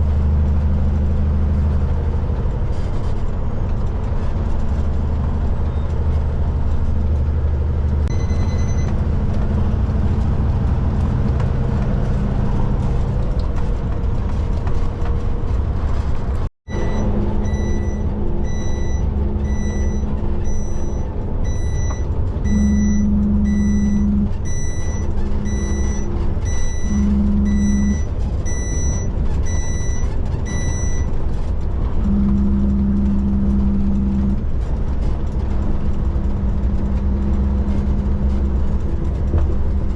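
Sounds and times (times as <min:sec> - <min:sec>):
heavy truck engine running: 0:00.0 - 0:39.9
reversing alarm beeping: 0:08.1 - 0:09.0, 0:16.7 - 0:31.1, 0:32.0 - 0:34.4.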